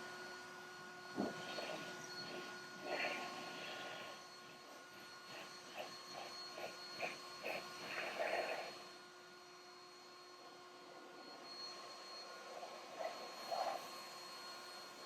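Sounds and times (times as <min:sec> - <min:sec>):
leaf blower running: 0:00.0 - 0:09.0.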